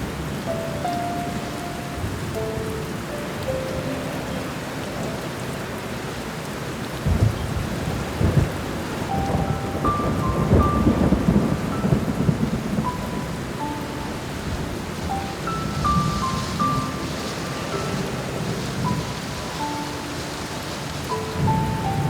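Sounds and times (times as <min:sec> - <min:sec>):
sparse slow piano notes: 0:00.0 - 0:22.0
steady rain: 0:00.0 - 0:22.0
rumble of thunder: 0:07.0 - 0:19.6.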